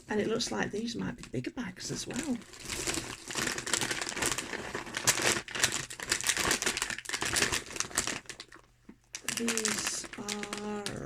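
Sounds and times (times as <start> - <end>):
crisp packets crinkling: 0.0 - 11.0.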